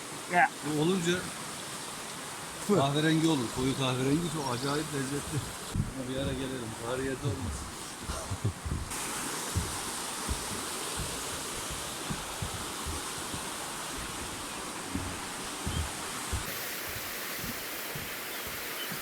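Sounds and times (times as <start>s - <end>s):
river water rushing: 0.0s - 19.0s
low thumps: 5.2s - 19.0s.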